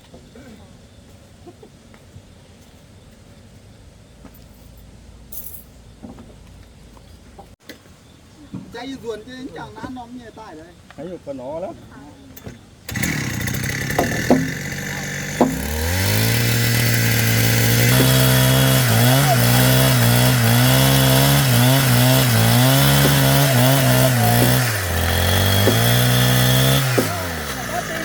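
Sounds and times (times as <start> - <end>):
power tool cutting wood: 12.4 - 28.0
knocks: 13.9 - 14.6, 15.3 - 15.7.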